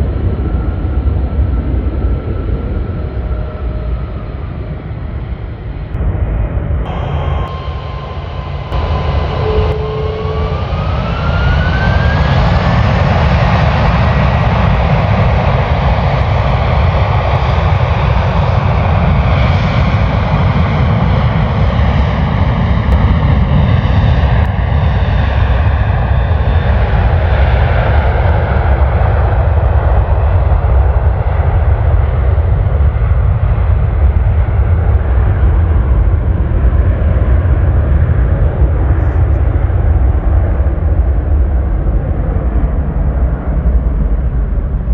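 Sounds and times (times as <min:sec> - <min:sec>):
jet engines spooling up: 0:01.9 - 0:24.4.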